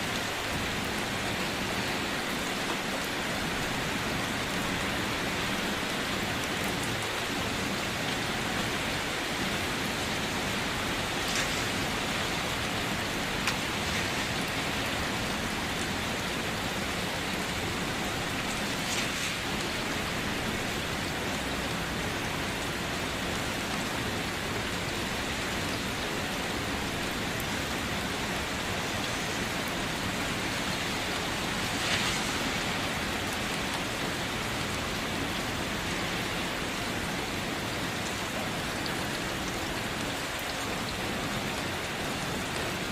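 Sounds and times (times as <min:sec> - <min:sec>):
loud raindrops: 0:00.0 - 0:42.9
steady rain falling: 0:00.0 - 0:42.9.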